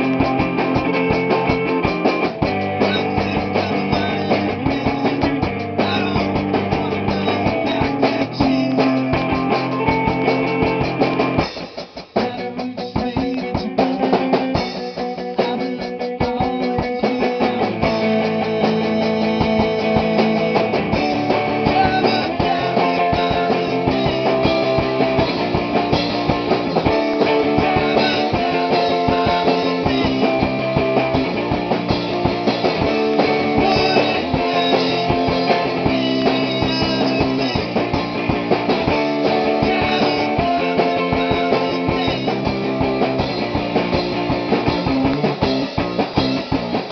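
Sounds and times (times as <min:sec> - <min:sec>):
distorted electric guitar: 0:00.0 - 0:46.9
drum kit: 0:00.0 - 0:46.9.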